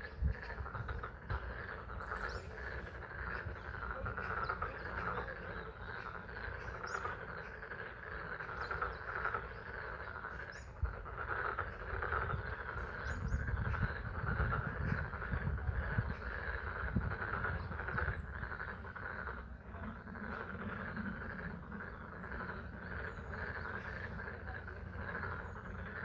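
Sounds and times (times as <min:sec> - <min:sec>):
chorus of frogs calling: 0:00.0 - 0:26.0.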